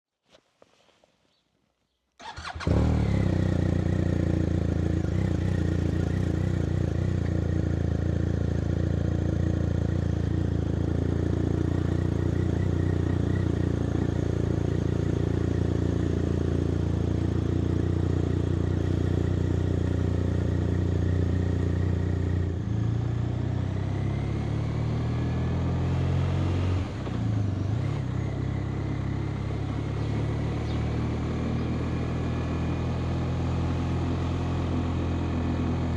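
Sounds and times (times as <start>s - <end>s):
motorcycle engine idling: 2.2s - 23.6s, 27.3s - 32.8s
motorcycle accelerating: 2.2s - 35.9s.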